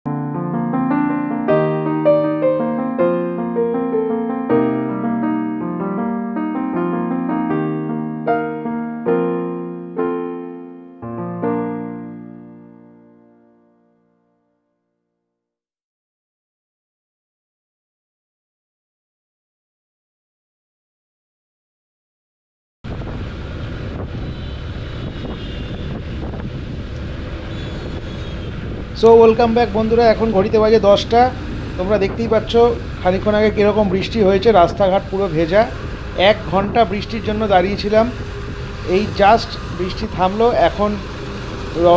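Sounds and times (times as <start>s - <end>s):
electric piano slow melody: 0.1s - 14.2s
wind rushing over microphone: 22.8s - 41.9s
motorcycle engine drone: 22.9s - 41.9s.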